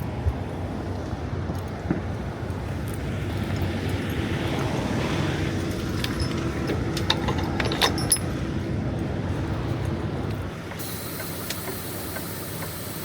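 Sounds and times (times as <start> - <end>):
truck engine idling: 5.1 - 13.0.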